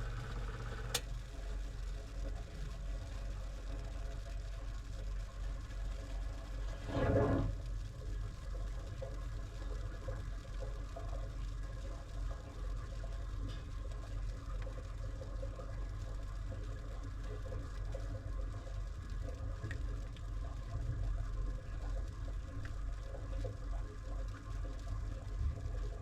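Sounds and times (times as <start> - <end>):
washing machine humming: 0.0 - 3.6
water churning in drum: 1.6 - 26.0.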